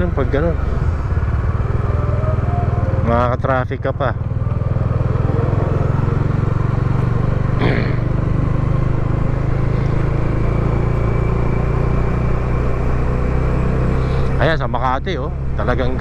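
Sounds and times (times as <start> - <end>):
motorcycle engine running: 0.0 - 16.0
short falling tone: 0.6 - 3.5.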